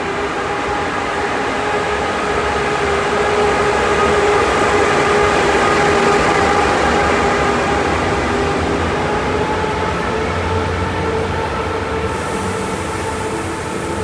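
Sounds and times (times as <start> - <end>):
electric locomotive whine and rumble: 0.0 - 14.0.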